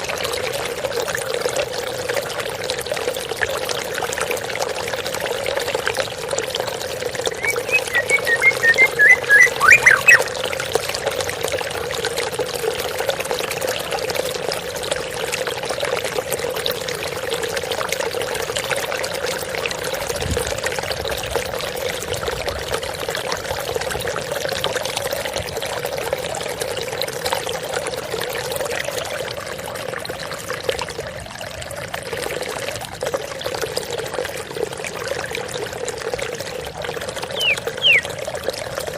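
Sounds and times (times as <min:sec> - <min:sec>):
water splashing and trickling: 0:00.0 - 0:38.9
songbird whistling: 0:07.3 - 0:10.4, 0:37.3 - 0:38.1.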